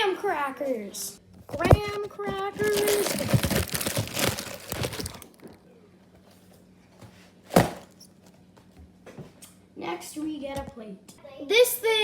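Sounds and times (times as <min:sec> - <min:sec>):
cracker package crinkling: 0:01.7 - 0:05.6.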